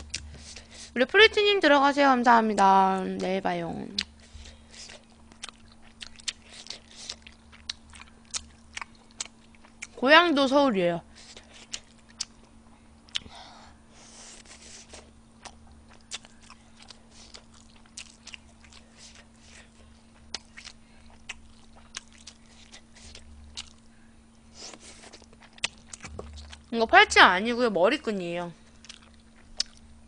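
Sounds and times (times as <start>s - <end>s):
faint steady hum: 0.0s - 30.0s
person chewing food: 4.0s - 10.0s, 11.2s - 13.3s, 14.0s - 26.7s, 28.7s - 29.9s.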